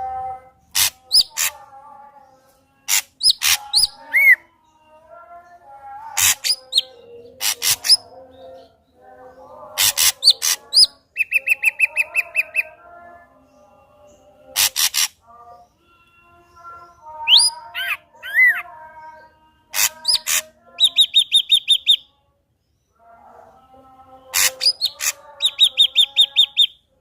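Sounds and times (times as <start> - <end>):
bird singing: 0.0 - 27.0
rapid bird trill: 14.5 - 15.2, 19.8 - 22.0, 24.3 - 26.9.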